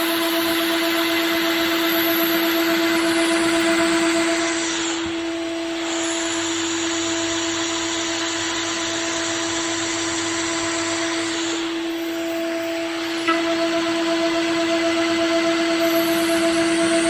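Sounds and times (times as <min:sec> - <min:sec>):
spindle whine: 0:11.6 - 0:17.0.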